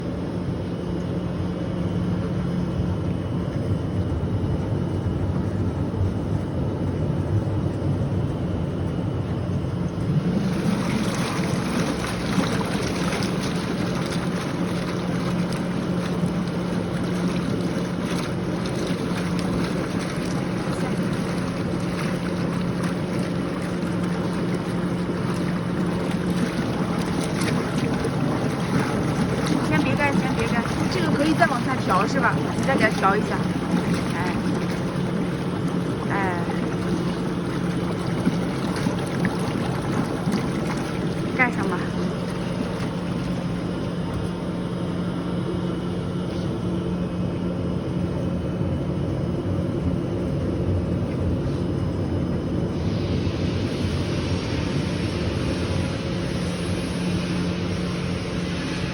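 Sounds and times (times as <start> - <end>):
motor hum: 0.0 - 58.9
rushing water: 10.0 - 44.0.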